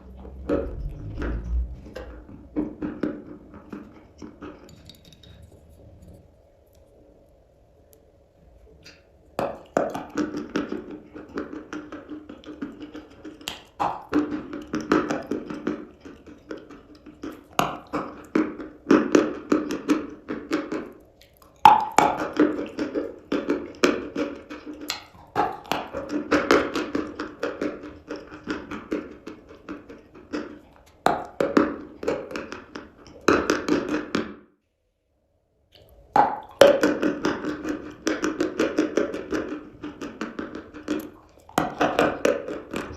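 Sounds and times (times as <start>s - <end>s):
chalk crunching being chewed: 12.2s - 18.7s, 20.5s - 26.1s.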